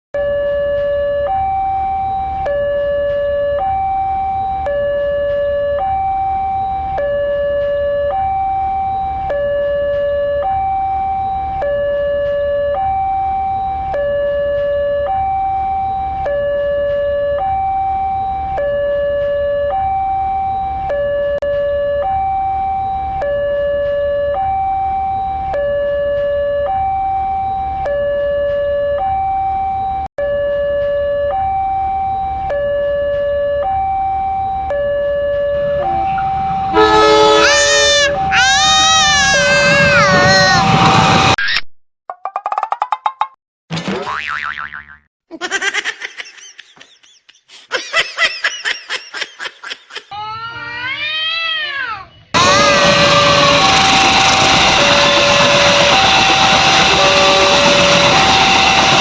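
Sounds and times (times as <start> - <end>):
two-tone siren: 0.2 - 41.4, 52.3 - 59.0.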